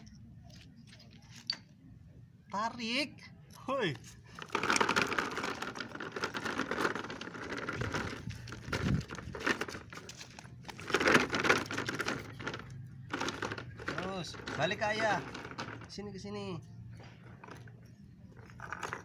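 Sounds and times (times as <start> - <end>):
plastic toy truck rattling: 4.4 - 16.4, 17.2 - 19.0.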